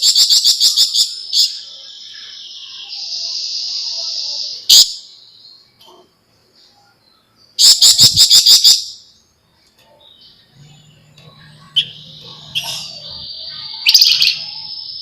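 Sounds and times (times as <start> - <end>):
bird singing rattling bursts: 0.0 - 1.6, 7.6 - 9.1, 10.6 - 15.0.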